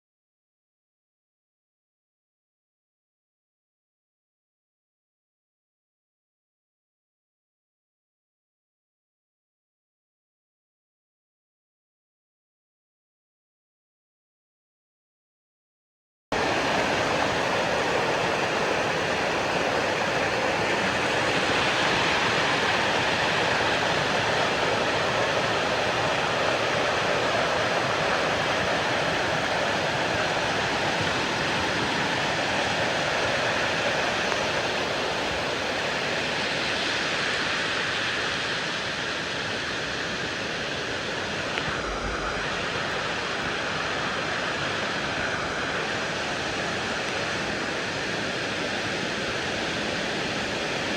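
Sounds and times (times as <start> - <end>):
flowing water rushing: 16.4 - 50.9.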